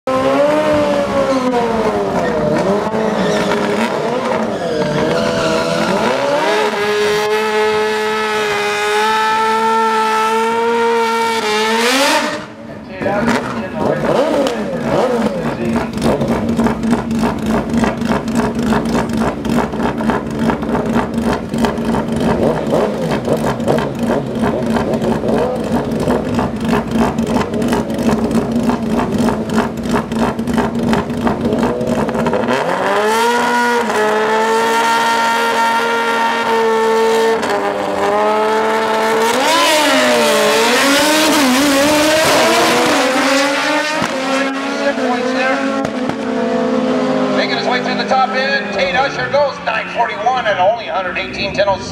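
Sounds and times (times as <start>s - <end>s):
high-pitched engine revving: 0.1s - 51.9s
rough pulsing engine rumble: 12.4s - 34.4s.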